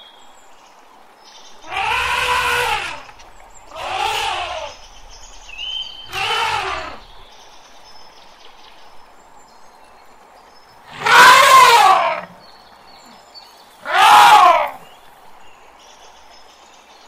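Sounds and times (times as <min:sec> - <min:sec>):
elephant trumpeting: 0:01.6 - 0:04.8, 0:06.1 - 0:07.1, 0:10.9 - 0:12.4, 0:13.8 - 0:14.8.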